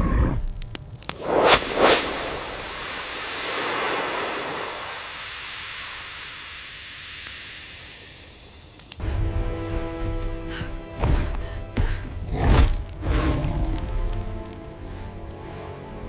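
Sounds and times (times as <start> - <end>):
steady broadband hiss: 1.1 - 9.0
music: 9.0 - 16.0.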